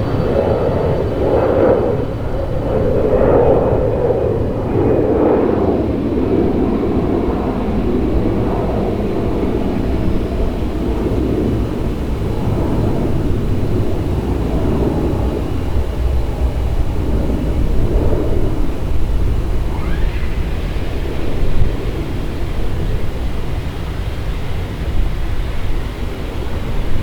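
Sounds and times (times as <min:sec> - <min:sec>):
jet engine roar: 0:00.0 - 0:27.0.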